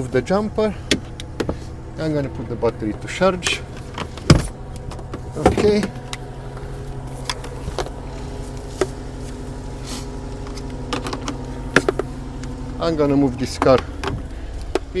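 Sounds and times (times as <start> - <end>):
car engine idling: 0.0 - 15.0
light clicks and knocks: 10.3 - 12.7.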